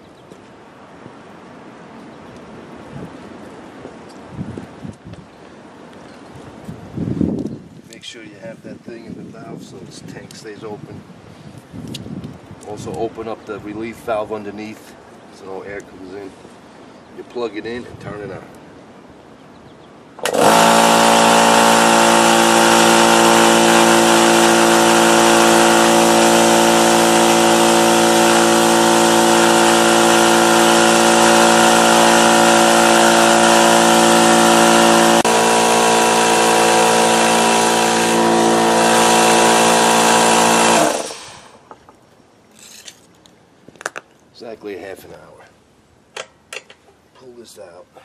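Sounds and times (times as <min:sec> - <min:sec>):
air compressor running: 0:20.2 - 0:41.7.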